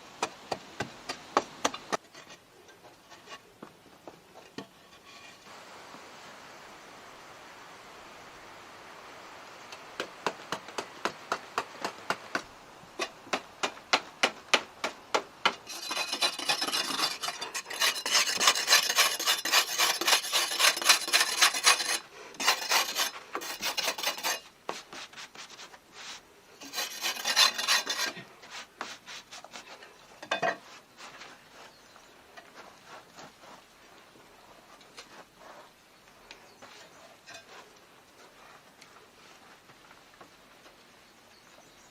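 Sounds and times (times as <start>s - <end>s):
hand tool scraping wood: 15.4s - 31.8s.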